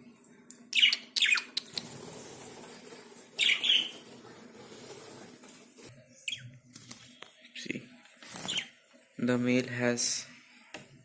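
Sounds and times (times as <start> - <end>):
lovebirds chirping: 0.7 - 1.9, 3.4 - 4.2, 8.4 - 8.7.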